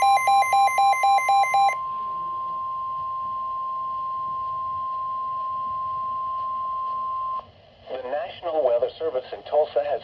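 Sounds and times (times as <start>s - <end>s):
long high alarm tone: 0.0s - 7.4s.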